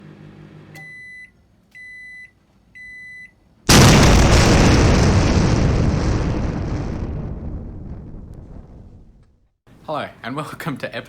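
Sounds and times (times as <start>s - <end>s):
microwave oven beeping: 0.0s - 3.4s
loud explosion boom: 3.7s - 9.4s.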